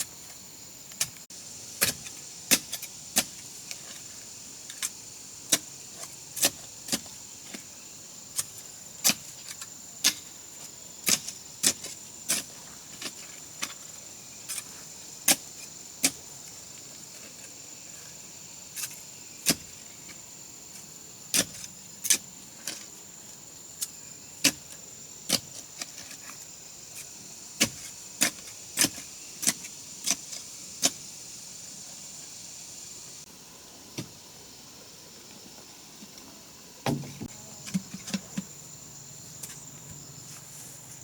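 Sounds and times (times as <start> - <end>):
sharp knocks: 36.8 - 38.5.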